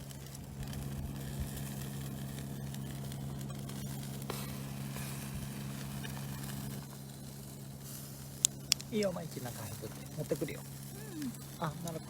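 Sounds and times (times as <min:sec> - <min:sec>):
fire crackling pops: 0:00.0 - 0:12.0
food sizzling over fire: 0:00.0 - 0:12.0
low hum: 0:00.0 - 0:12.0.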